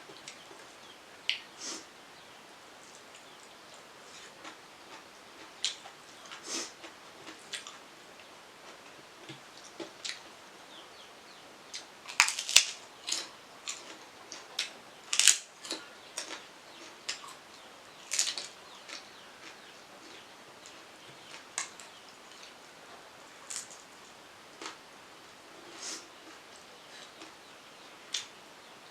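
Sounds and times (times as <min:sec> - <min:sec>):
chewing crunches: 0:11.8 - 0:16.4, 0:18.1 - 0:20.2.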